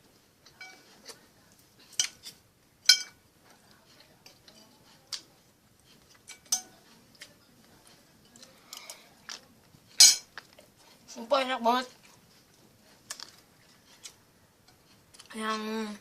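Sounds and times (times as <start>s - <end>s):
cutlery clinking against plate: 0.5s - 1.2s, 1.9s - 3.2s, 6.1s - 7.4s, 8.2s - 10.6s.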